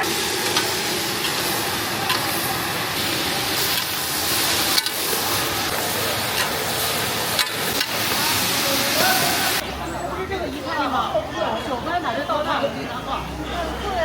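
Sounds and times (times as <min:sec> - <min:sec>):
hot oil sizzling: 0:00.0 - 0:09.8.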